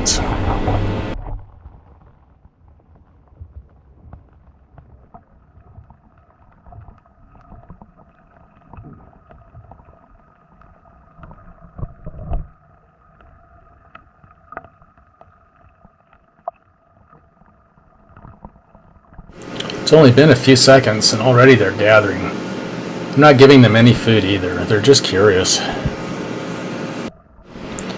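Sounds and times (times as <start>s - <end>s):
faint underwater hum: 0.0s - 1.2s, 19.0s - 27.9s.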